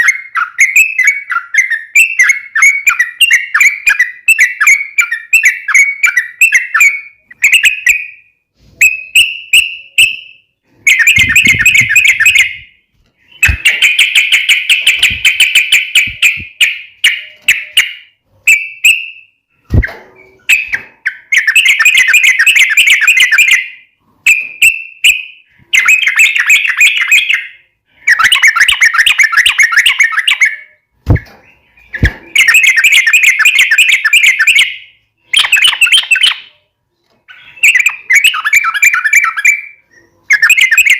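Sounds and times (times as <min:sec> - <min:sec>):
bulbul chattering song: 0:08.8 - 0:36.6, 0:37.3 - 0:40.9.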